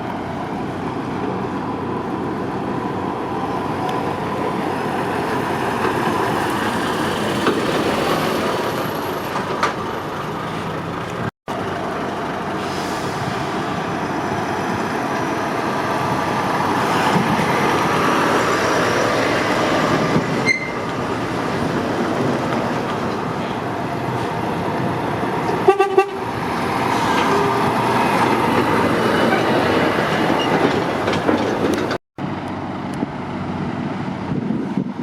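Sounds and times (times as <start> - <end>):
heavy traffic rushing: 0.0 - 35.0
vehicle horn toot: 25.6 - 26.2
wind on microphone: 32.9 - 35.0.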